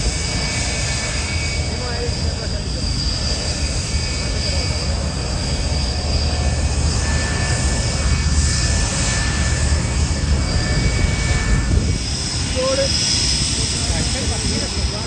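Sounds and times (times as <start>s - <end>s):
aircraft engine rumble: 0.0s - 15.0s.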